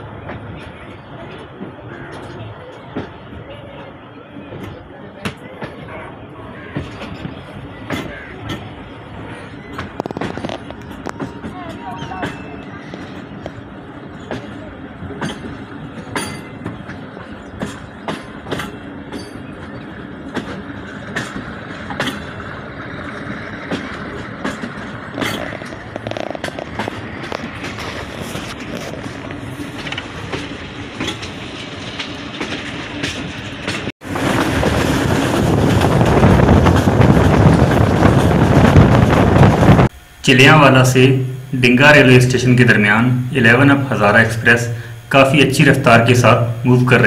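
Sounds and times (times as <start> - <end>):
train rumbling along track: 0.0 - 47.0
wheels clicking over rail: 9.7 - 39.8.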